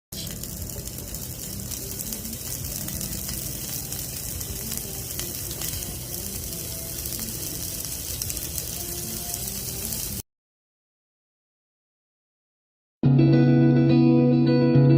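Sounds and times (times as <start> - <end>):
grilled meat sizzling: 0.1 - 10.2.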